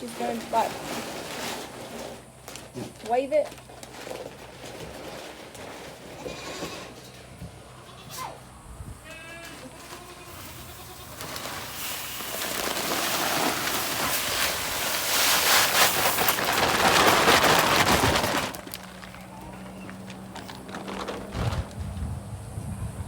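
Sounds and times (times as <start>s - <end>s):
goat bleating: 7.7s - 11.2s.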